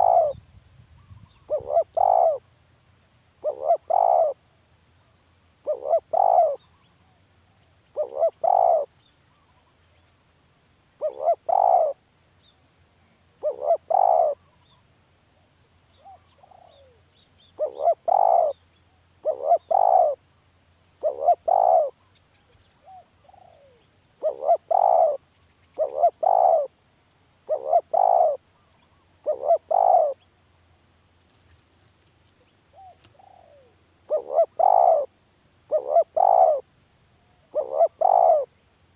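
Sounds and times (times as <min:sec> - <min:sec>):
dove cooing: 0:00.0 - 0:00.4, 0:01.0 - 0:02.5, 0:03.4 - 0:04.4, 0:05.6 - 0:06.8, 0:07.9 - 0:09.7, 0:11.0 - 0:12.0, 0:13.4 - 0:14.8, 0:16.0 - 0:17.0, 0:17.6 - 0:18.6, 0:19.2 - 0:20.2, 0:21.0 - 0:22.0, 0:22.8 - 0:25.2, 0:25.8 - 0:26.7, 0:27.4 - 0:30.2, 0:32.7 - 0:35.1, 0:35.7 - 0:38.5.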